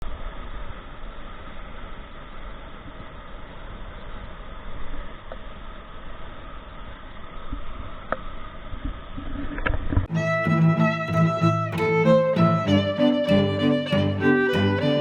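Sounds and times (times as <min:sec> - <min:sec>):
music with violin: 0:10.1 - 0:15.0.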